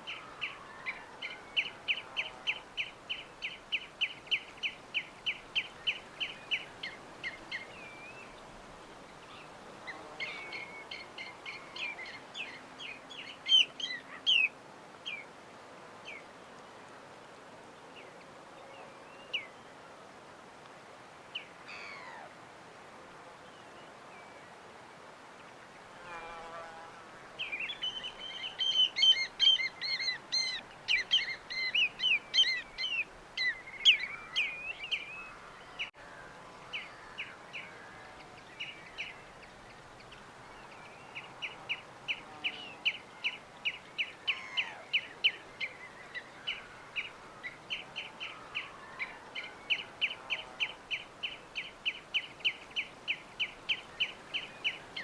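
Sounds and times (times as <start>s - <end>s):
faint steady hiss: 0.0s - 55.0s
small birds chirping: 27.3s - 36.0s, 36.6s - 55.0s.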